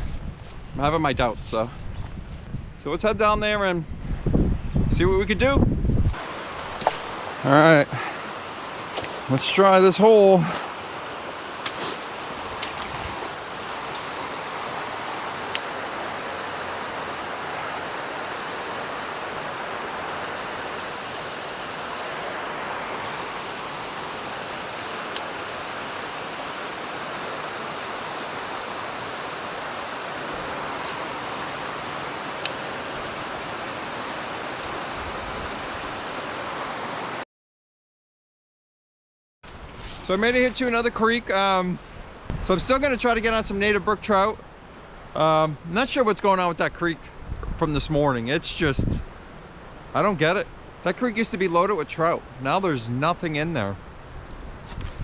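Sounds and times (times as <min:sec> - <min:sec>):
creek water rushing over rocks: 0:06.2 - 0:37.2.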